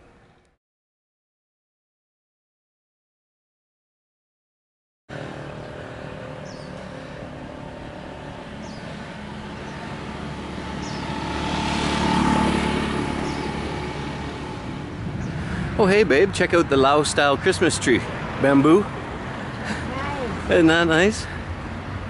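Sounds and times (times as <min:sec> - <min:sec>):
vehicle engine passing: 0:05.1 - 0:22.0.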